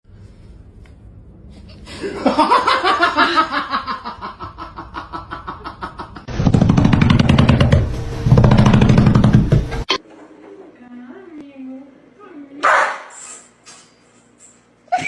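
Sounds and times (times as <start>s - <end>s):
person laughing hard: 1.9s - 6.3s.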